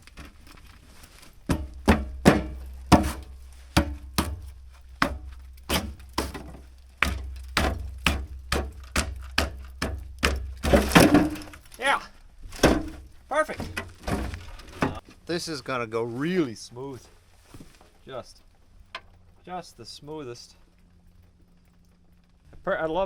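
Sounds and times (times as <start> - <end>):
low steady hum: 0.0 - 23.0
sharp knocks: 1.5 - 11.6.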